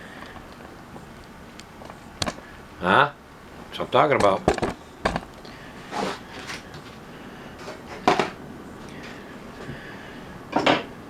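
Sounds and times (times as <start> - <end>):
cooking gear knocking and clattering: 4.1 - 5.4.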